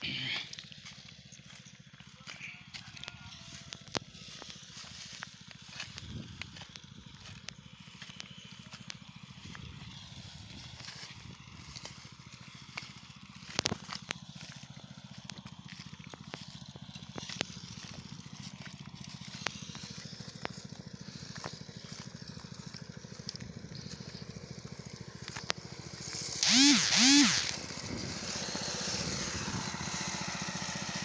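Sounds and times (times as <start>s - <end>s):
small engine running: 0.0s - 31.0s
sharp clicks: 26.1s - 27.6s.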